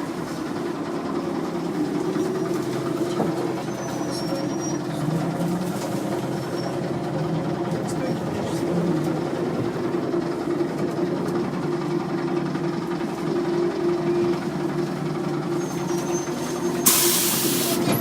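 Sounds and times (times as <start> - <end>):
bus ride noise: 0.0 - 18.0
burst of hissing air: 16.8 - 17.8.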